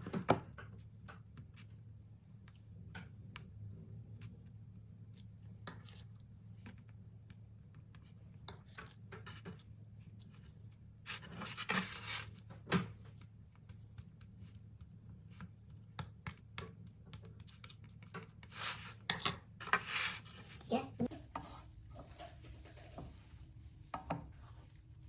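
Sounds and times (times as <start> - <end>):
rubbing or scraping: 11.1 - 12.4, 18.4 - 23.2.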